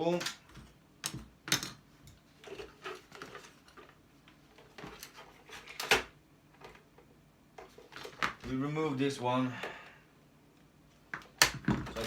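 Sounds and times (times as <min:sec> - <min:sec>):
clicks and knocks of small parts: 0:00.1 - 0:04.0.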